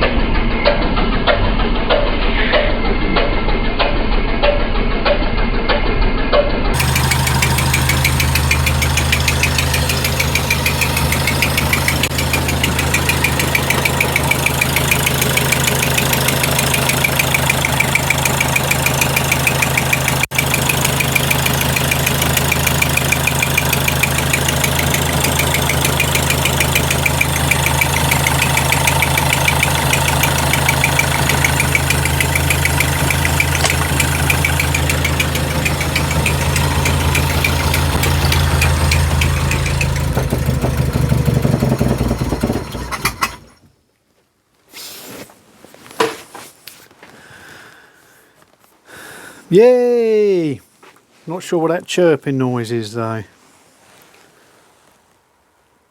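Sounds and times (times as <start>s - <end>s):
car engine idling: 6.8s - 43.6s.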